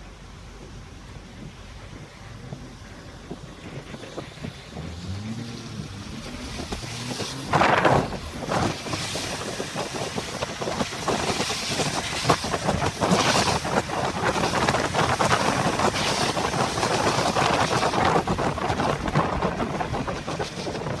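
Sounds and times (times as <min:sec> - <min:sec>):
car engine: 0:00.0 - 0:12.4
wind and rain against car: 0:00.0 - 0:21.0.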